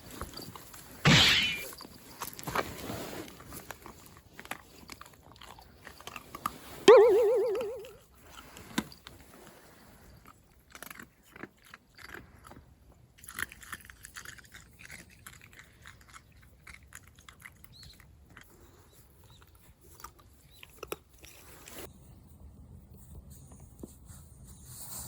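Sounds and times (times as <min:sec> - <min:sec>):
dog chewing crunchy food: 0:01.8 - 0:06.8, 0:08.1 - 0:21.8.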